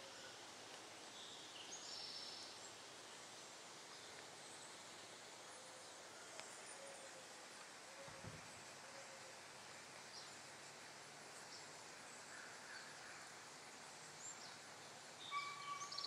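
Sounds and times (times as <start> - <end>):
faint outdoor ambience: 0.0 - 16.0
bird chirps: 15.2 - 16.0
bird trill: 15.2 - 16.0.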